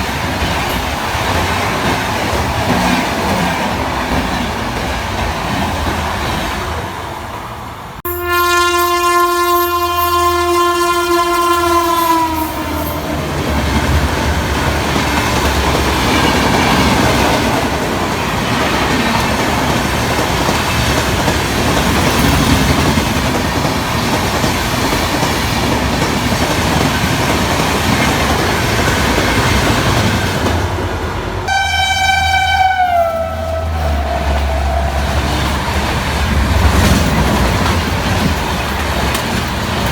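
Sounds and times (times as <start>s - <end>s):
train rushing by: 0.0s - 39.9s
locomotive horn: 8.0s - 13.4s, 31.5s - 35.9s.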